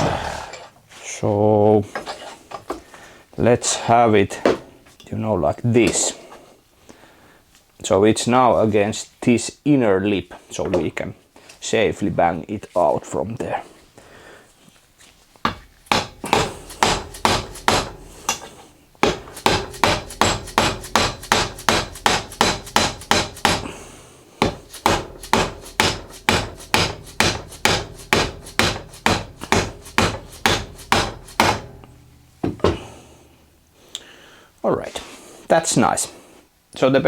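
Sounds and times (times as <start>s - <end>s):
hammer striking metal: 15.5s - 23.8s, 24.4s - 33.0s.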